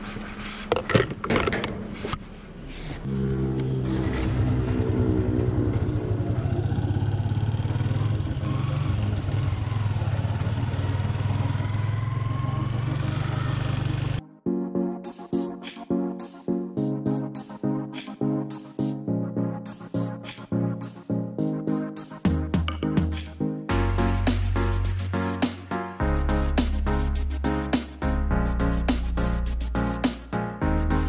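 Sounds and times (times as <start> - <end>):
motorcycle engine running: 3.1 - 14.2.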